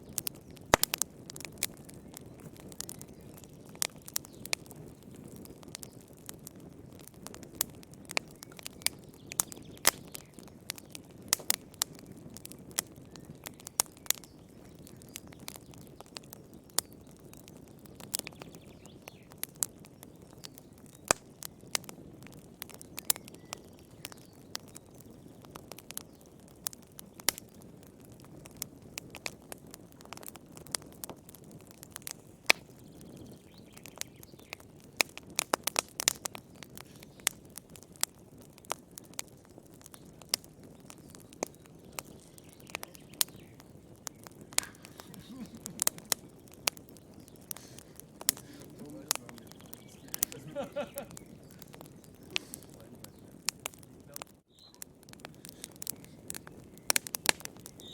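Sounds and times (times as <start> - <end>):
wood fire crackling and popping: 0.0 - 57.9
soft rush of flame: 26.6 - 57.9.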